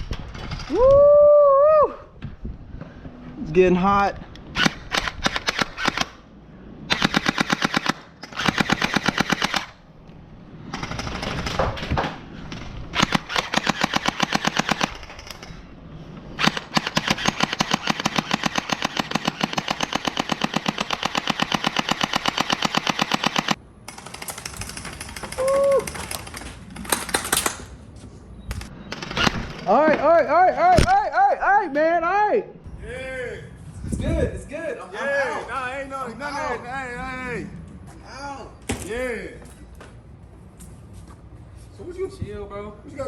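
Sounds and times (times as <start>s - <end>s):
gel blaster firing full auto: 4.5s - 6.2s, 6.9s - 9.8s, 12.9s - 15.3s, 16.4s - 27.7s.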